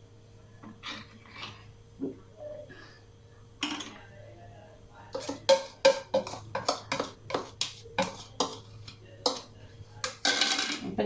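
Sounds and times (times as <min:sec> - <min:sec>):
metal spoon clinking on bowl: 0:05.2 - 0:10.9.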